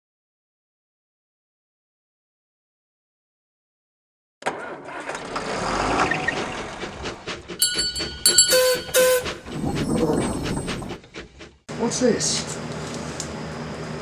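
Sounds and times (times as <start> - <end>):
train running with rail clatter: 5.2 - 14.0
train whistle toots: 7.6 - 9.5.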